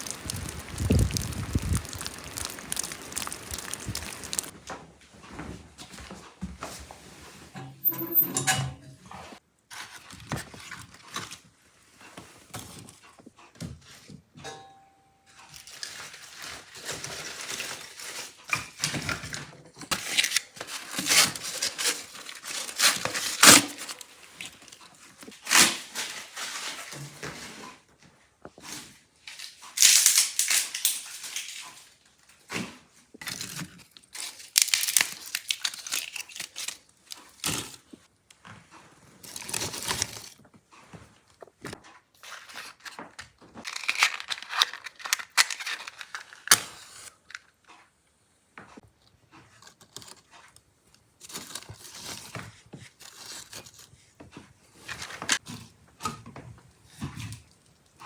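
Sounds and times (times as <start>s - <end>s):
rustling and crinkling handling: 0.0s - 7.5s, 15.6s - 47.6s.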